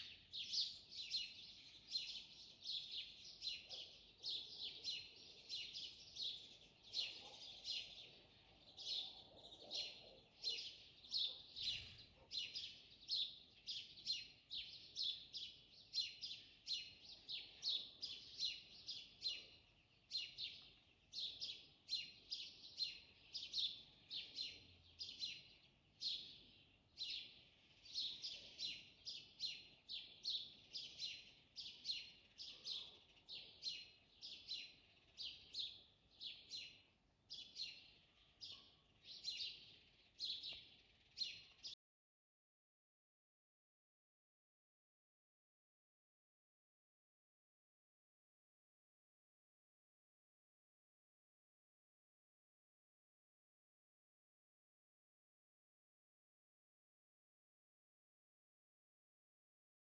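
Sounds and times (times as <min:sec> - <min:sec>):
birds chirping: 0:00.0 - 0:41.8.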